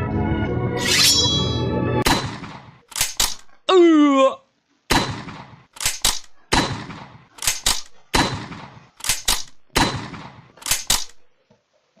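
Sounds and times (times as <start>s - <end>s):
gunshot-like cracks in a beat: 2.0s - 2.8s, 4.9s - 5.6s, 8.2s - 8.8s, 9.8s - 10.5s.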